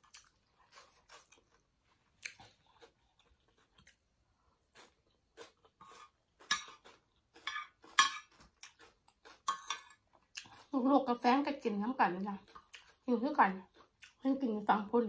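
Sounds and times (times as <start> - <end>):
chewing mouth sounds: 0.0 - 1.6, 12.4 - 13.0
metal spoon scraping plate: 7.4 - 8.3.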